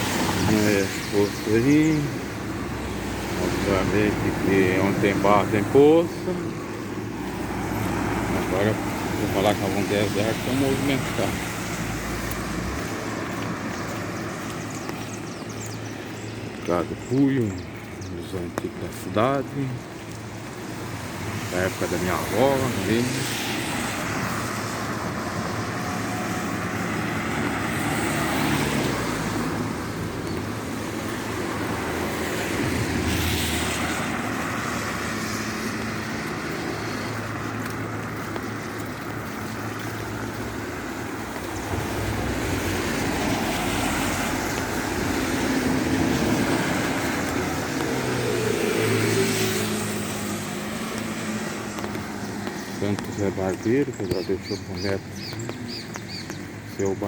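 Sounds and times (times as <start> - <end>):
hiss of tyres and rain: 20.6 - 53.1.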